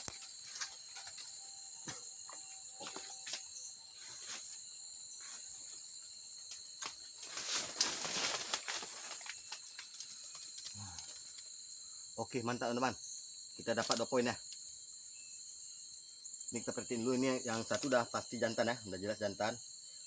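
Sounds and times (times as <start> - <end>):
insects droning: 0.0 - 20.0
rustling: 7.1 - 11.6.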